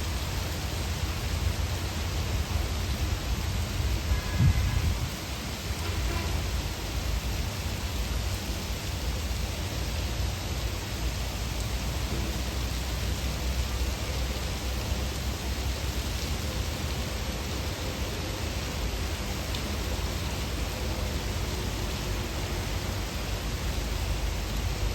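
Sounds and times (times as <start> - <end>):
heavy rain pouring: 0.0 - 24.9.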